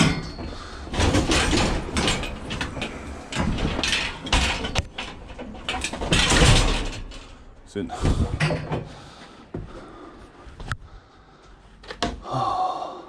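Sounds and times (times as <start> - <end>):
scrap metal scraping and clattering: 0.0 - 9.0.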